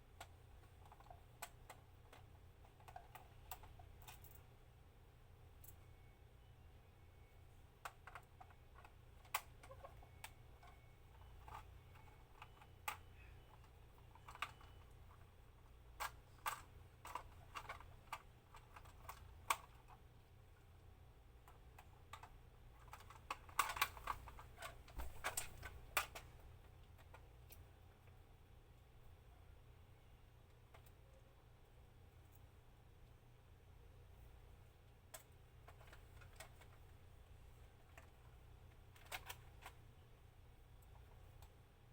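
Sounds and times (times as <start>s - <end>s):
small plastic parts clicking: 0.2s - 4.5s, 7.8s - 20.1s, 20.8s - 28.2s, 30.5s - 31.2s, 34.8s - 36.9s, 37.7s - 39.9s, 40.8s - 41.6s.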